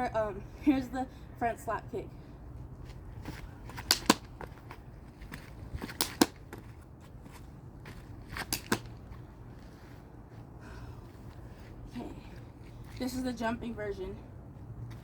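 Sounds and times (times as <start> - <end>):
hand slapping foot: 3.8 - 4.4, 5.8 - 6.6, 8.4 - 9.0.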